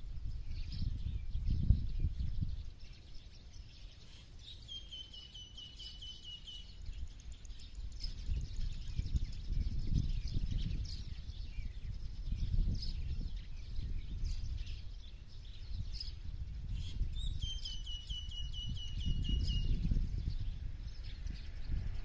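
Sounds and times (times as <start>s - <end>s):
birds chirping and singing: 0.0s - 22.0s
rapid bird trill: 2.3s - 20.4s.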